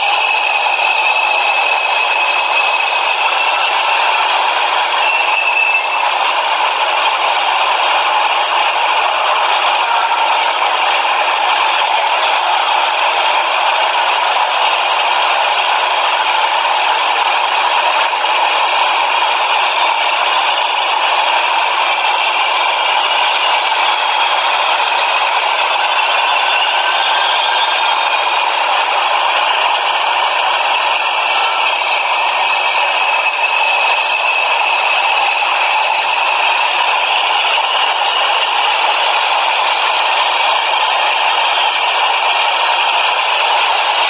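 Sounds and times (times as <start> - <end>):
subway train rattling: 0.0 - 44.0.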